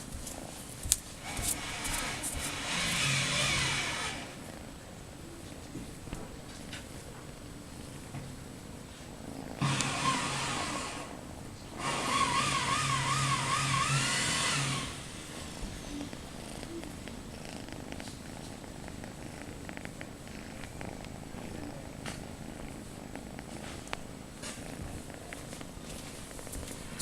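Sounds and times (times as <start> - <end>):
cat purring: 0.0 - 11.8, 14.1 - 27.0
loud whirring with whine: 1.2 - 4.4, 9.6 - 11.1, 11.8 - 16.1.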